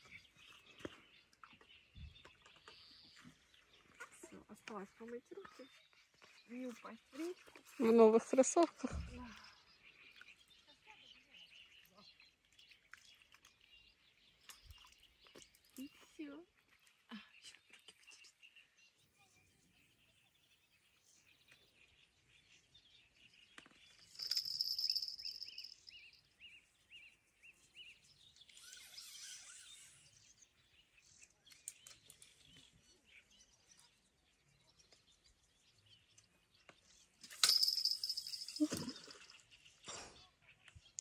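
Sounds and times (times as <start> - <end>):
birds calling in reeds: 23.5 - 26.3, 27.9 - 31.0
quick high chirps: 24.1 - 25.9, 37.3 - 39.1.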